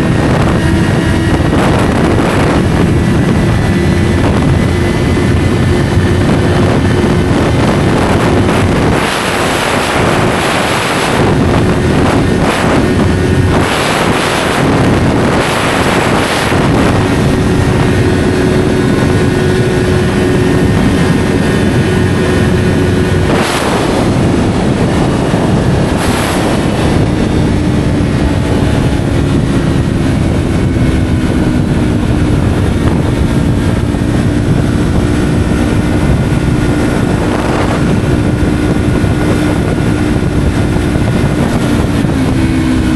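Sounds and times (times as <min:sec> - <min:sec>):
motorcycle engine running: 0:00.0 - 0:42.9
rushing wind noise: 0:00.0 - 0:42.9.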